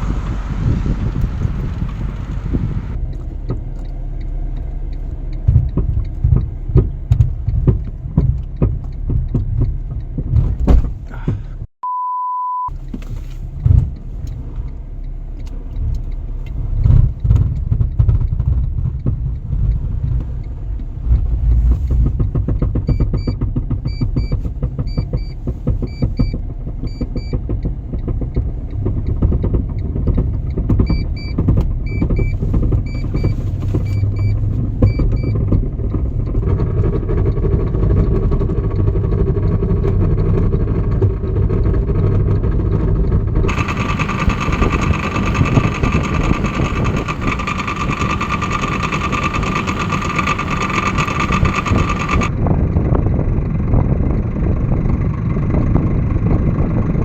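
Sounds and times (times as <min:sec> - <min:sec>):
car engine rumble: 0:00.0 - 0:11.8, 0:12.7 - 0:57.0
short high electronic beeps: 0:11.8 - 0:12.7
steady long beep: 0:11.8 - 0:12.7.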